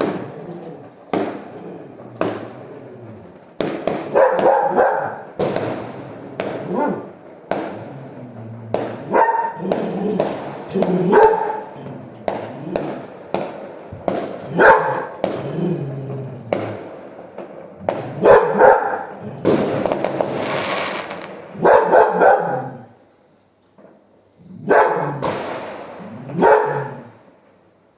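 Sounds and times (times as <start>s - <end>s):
dog barking: 0.0s - 13.1s, 14.0s - 16.8s, 17.8s - 19.8s, 21.6s - 23.0s, 24.5s - 25.4s, 26.0s - 27.3s
fireworks popping: 0.0s - 23.0s, 24.7s - 27.8s.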